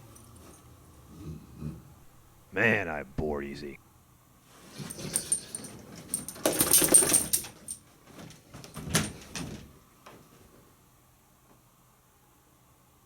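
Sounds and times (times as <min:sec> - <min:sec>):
dog rummaging scrapes and rattles: 0:04.6 - 0:09.7.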